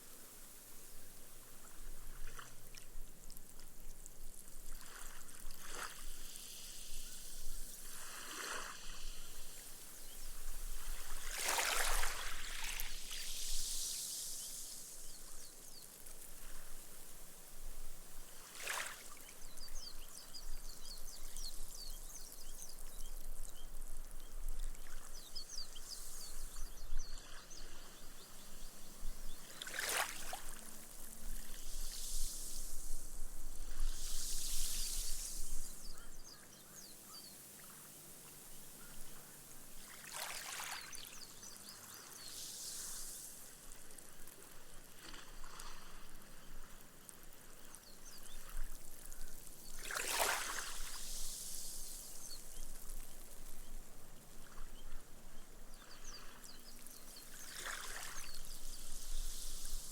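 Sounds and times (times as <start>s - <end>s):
small waves washing on sand: 0.0s - 20.2s, 24.5s - 36.0s, 37.5s - 54.7s, 55.8s - 59.9s
foam fizzing into sand: 4.3s - 20.1s, 25.3s - 36.0s, 39.7s - 53.8s.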